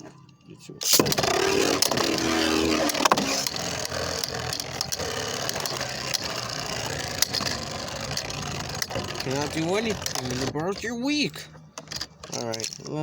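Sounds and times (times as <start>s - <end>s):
spinning tops whirring: 0.8s - 10.8s
tops clashing clicks: 0.8s - 10.9s.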